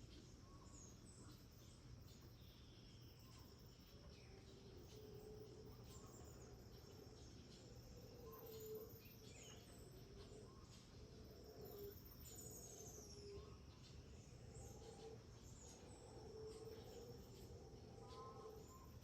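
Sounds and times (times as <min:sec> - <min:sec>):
birds chirping and whistling: 0:00.0 - 0:19.0
insect drone: 0:00.0 - 0:19.0.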